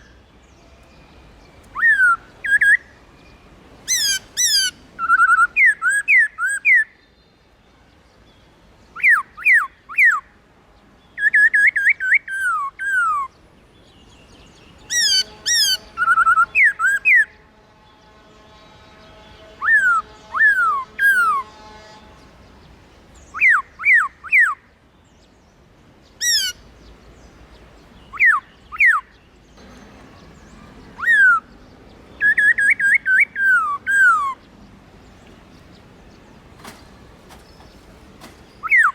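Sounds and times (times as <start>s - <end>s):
bird singing whistled notes: 0.0s - 7.4s, 14.0s - 17.3s, 28.0s - 34.6s, 35.3s - 38.9s.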